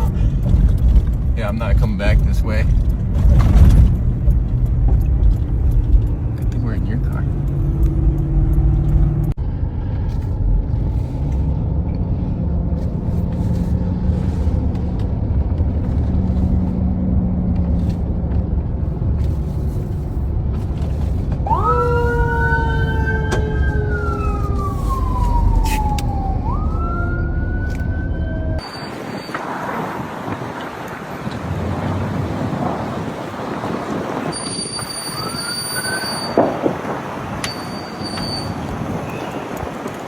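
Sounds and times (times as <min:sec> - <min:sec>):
car driving rumble: 0:00.0 - 0:40.0
emergency vehicle siren: 0:21.4 - 0:33.4.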